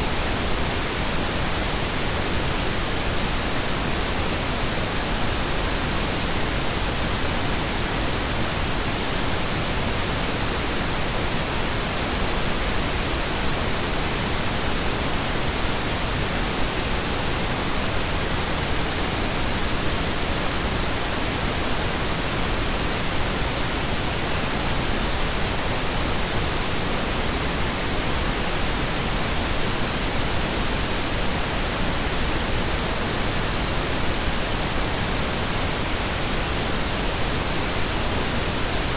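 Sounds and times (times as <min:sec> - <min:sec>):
pink noise hiss: 0:00.0 - 0:38.9.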